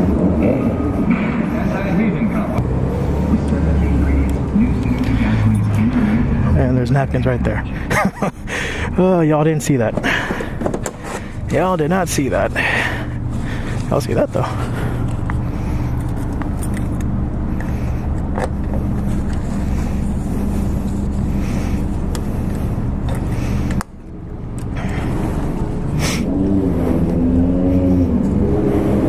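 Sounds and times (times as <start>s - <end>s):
motorcycle engine running: 11.2s - 27.2s.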